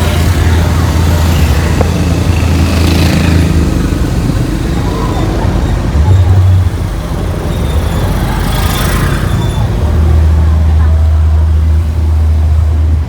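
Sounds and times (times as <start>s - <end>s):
loud bass from speakers: 3.5s - 8.4s.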